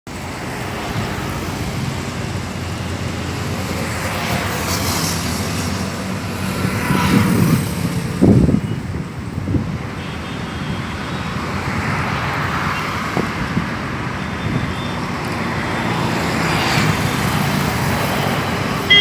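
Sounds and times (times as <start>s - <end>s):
jet engine whine: 0.1s - 11.2s.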